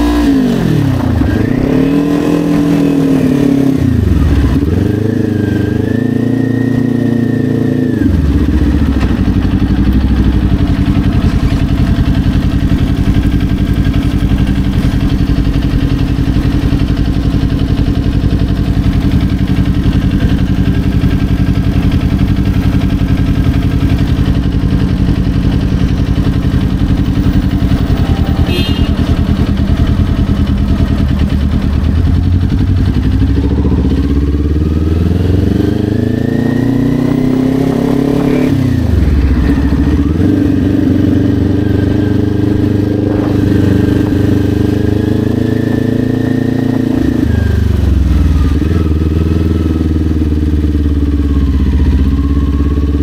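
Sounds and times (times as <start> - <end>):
motorcycle engine revving and idling: 0.0 - 53.0.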